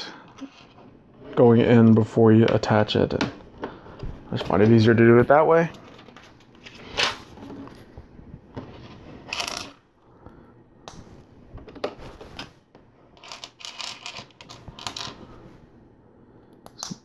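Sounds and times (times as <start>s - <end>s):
plastic bricks clicking and clattering: 13.2s - 15.2s.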